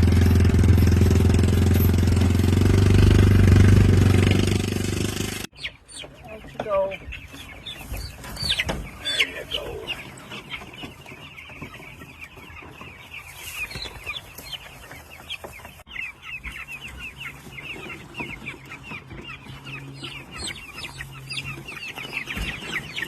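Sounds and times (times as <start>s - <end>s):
chicks peeping: 5.4s - 23.0s.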